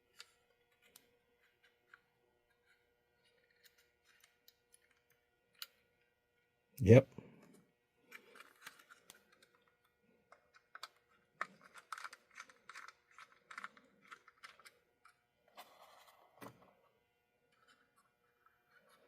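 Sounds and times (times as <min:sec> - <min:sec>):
plastic parts clicking and scraping: 0:00.1 - 0:05.8, 0:07.4 - 0:16.6, 0:17.5 - 0:19.0.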